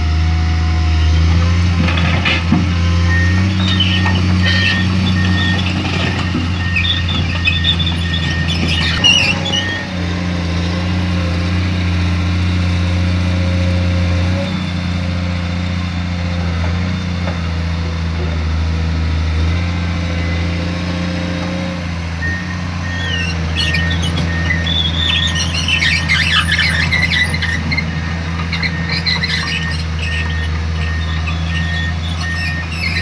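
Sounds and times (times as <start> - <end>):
excavator diesel engine running: 0.0 - 33.0
short squeak: 1.8 - 10.0, 22.2 - 33.0.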